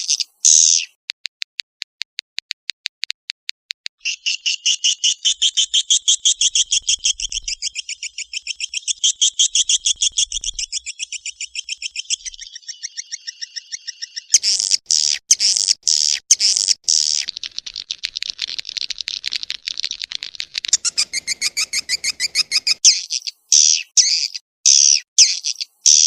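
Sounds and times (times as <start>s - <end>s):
swiftlet clicks: 0.0s - 4.0s
swiftlet twittering chirps: 4.0s - 17.4s, 20.7s - 26.0s.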